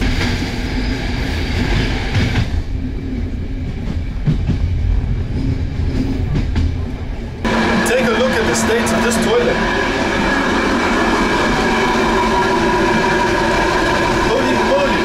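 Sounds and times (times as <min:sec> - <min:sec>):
low rumble of wheels: 0:00.0 - 0:15.0
rushing noise: 0:07.4 - 0:15.0.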